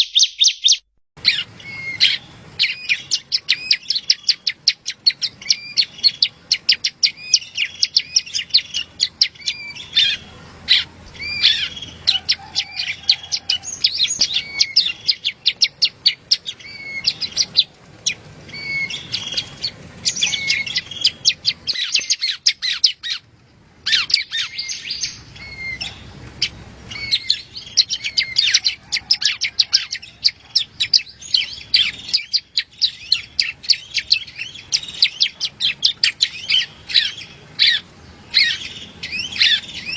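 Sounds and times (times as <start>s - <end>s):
bird singing high chirps and trills: 0.0s - 39.9s.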